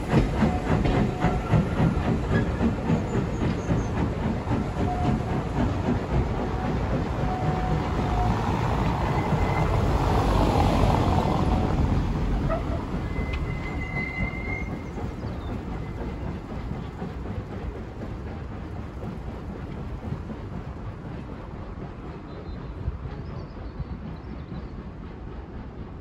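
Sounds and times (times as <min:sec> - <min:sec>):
train rumbling on track: 0:00.0 - 0:26.0
brief high squeal: 0:12.5 - 0:14.8.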